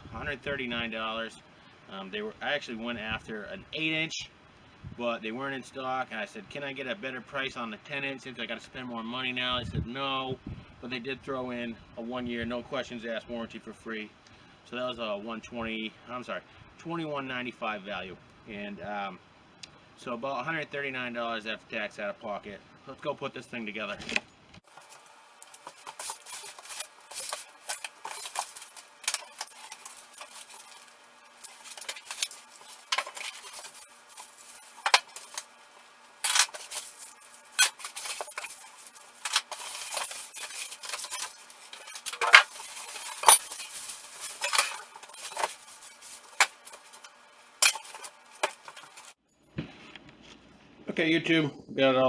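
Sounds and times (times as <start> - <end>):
packing rustling and scraping: 23.9 - 50.4
metal parts clanking: 24.8 - 49.1.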